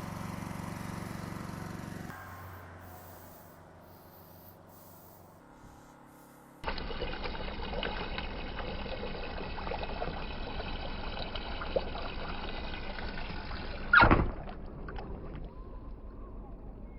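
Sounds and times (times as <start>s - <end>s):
tap water running into sink: 6.7s - 14.5s.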